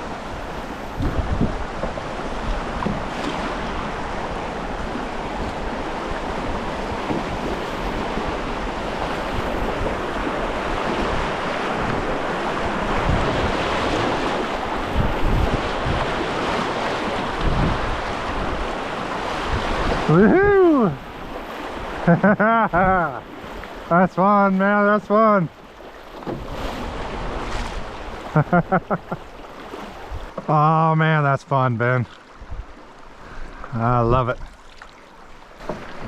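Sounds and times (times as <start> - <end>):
wind buffeting microphone: 0.0 - 22.1, 32.3 - 34.6
rushing whitewater: 0.0 - 36.0.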